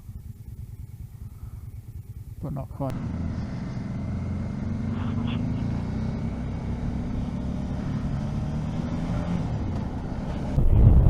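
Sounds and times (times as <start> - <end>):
motorcycle engine running: 0.0 - 11.0
wind rush on microphone: 10.6 - 11.0.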